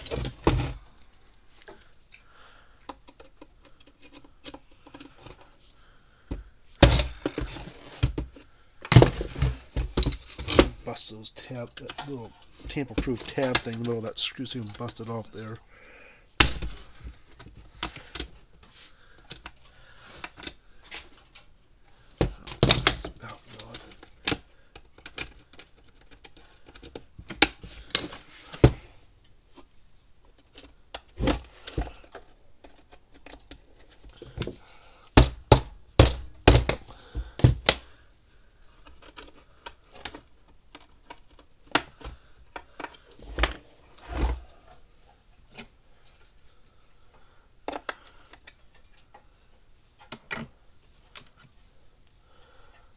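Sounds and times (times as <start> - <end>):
hand tools clicking on plastic: 2.8 - 5.6, 11.7 - 15.6, 38.8 - 43.6.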